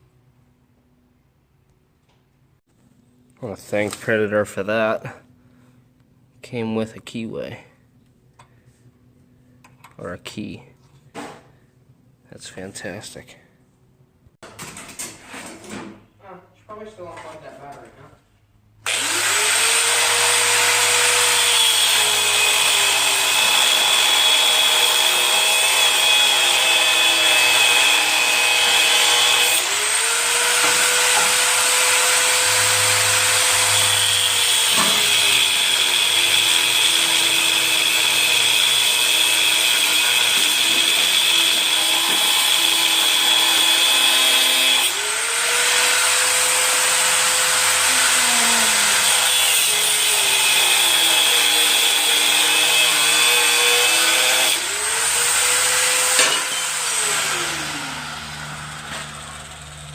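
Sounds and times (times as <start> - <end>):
electric drill whining: 18.8 - 59.9.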